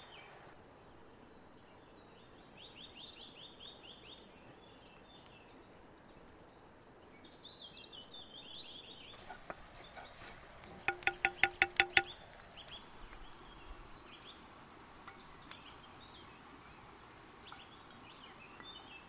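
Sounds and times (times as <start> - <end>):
outdoor background noise: 0.0 - 19.0
bird singing: 1.3 - 10.2, 10.8 - 19.0
utensil tapping on cookware: 10.7 - 12.2.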